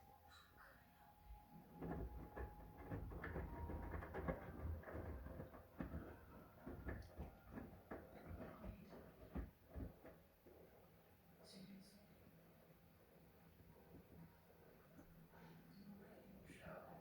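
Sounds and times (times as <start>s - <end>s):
washing machine clicks and knocks: 1.8s - 10.2s
washing machine low thumps: 1.8s - 10.3s.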